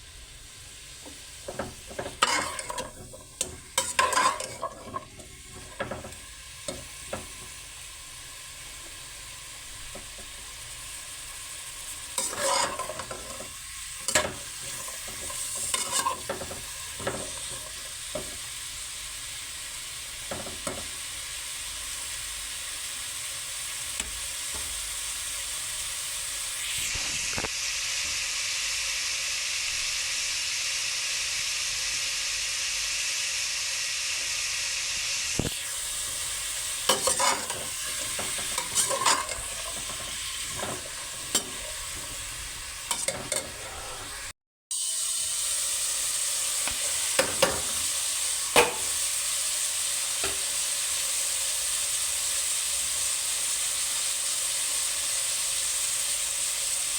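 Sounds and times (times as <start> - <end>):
food sizzling in oil: 0.0 - 56.9
spoon scraping pan: 1.0 - 7.9, 8.8 - 11.2, 11.8 - 18.6, 20.2 - 21.0, 36.1 - 44.3, 46.6 - 47.9, 48.6 - 49.0.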